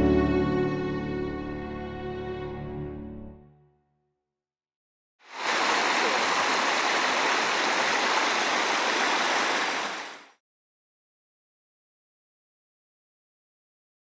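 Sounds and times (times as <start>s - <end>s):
running water rushing: 5.3s - 10.3s.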